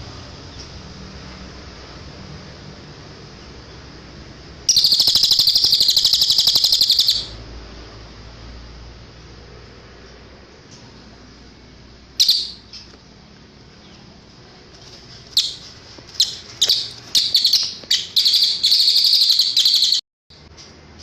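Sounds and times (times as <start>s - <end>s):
songbird chirping and trilling: 4.7s - 7.4s, 12.2s - 13.0s, 15.1s - 20.0s.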